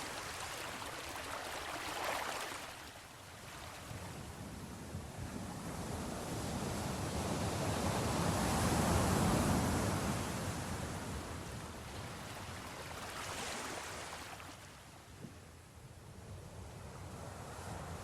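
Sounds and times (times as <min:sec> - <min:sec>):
ocean waves breaking on shore: 0:00.0 - 0:04.8, 0:05.4 - 0:14.9.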